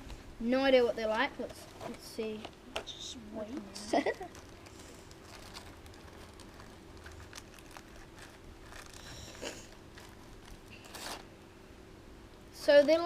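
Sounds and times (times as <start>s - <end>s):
snack packaging rustling: 4.0s - 11.3s.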